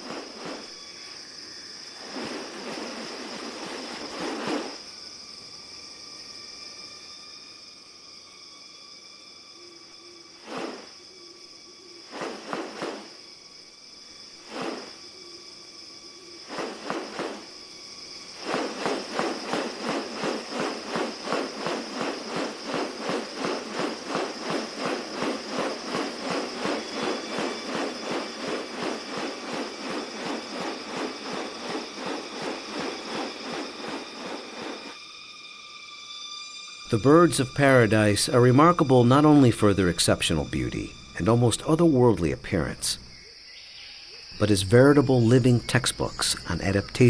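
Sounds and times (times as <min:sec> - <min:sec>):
rustling strokes: 0:00.0 - 0:01.2, 0:01.9 - 0:04.8, 0:10.4 - 0:10.9, 0:12.1 - 0:13.1, 0:14.4 - 0:15.0, 0:16.4 - 0:17.5, 0:18.2 - 0:35.0
insect chorus: 0:00.0 - 0:47.0.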